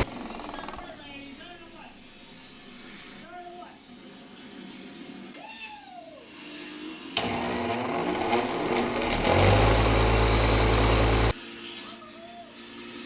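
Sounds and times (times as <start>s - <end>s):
machine motor running: 0.0s - 1.3s, 7.2s - 11.3s.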